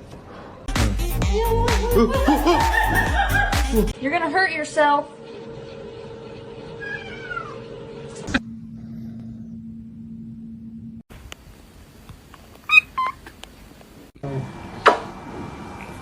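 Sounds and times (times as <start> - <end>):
cat meowing: 6.8 - 7.6.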